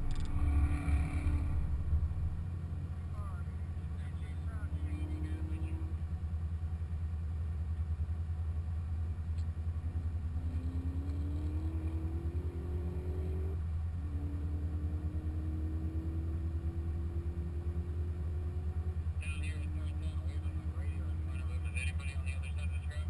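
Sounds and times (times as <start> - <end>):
car engine pulling under load: 0.0 - 4.0.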